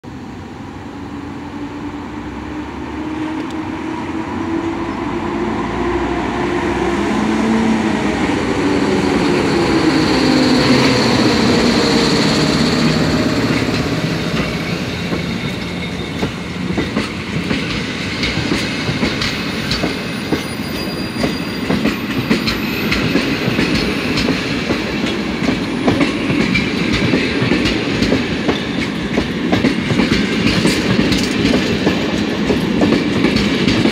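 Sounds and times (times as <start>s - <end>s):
electric locomotive hum: 0.0s - 33.9s
wheels clickety-clack over rail joints: 10.4s - 33.9s.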